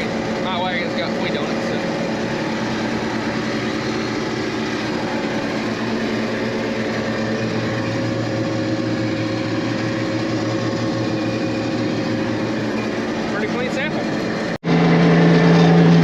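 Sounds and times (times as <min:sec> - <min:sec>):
farm machinery engine running: 0:00.0 - 0:16.0.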